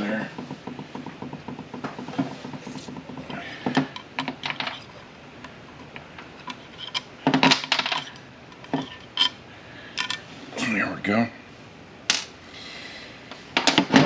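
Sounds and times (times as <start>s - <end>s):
metal tools clinking on metal: 6.4s - 9.4s.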